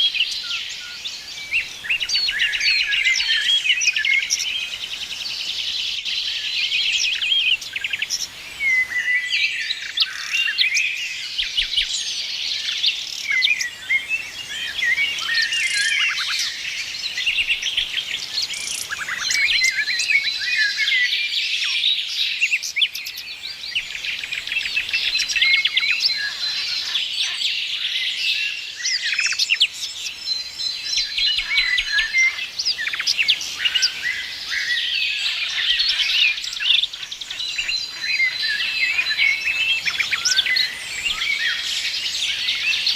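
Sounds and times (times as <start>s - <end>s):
many small birds chirping: 0.0s - 42.9s.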